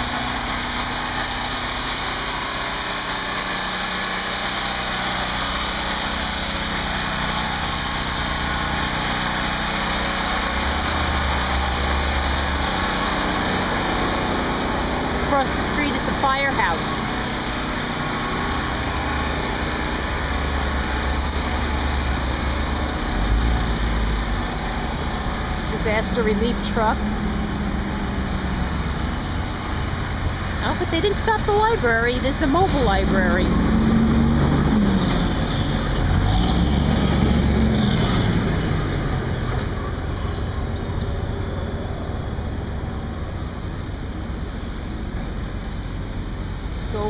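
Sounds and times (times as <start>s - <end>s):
generator engine running: 0.0s - 47.0s
motor vehicle rumble: 0.0s - 47.0s
outdoor background noise: 0.0s - 47.0s.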